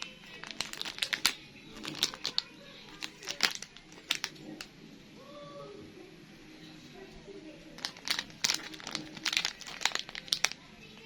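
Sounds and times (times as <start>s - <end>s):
sharp clicks and crinkles: 0.0s - 4.7s, 7.8s - 11.0s.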